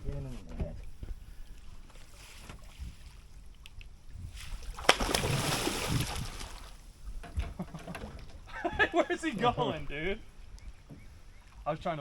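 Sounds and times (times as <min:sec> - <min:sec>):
fish splashing water: 0:04.4 - 0:06.8.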